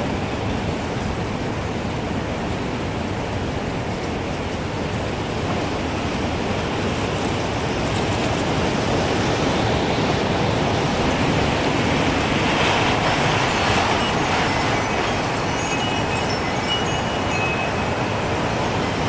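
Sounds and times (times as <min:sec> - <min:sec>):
gusting wind: 0:00.0 - 0:19.0.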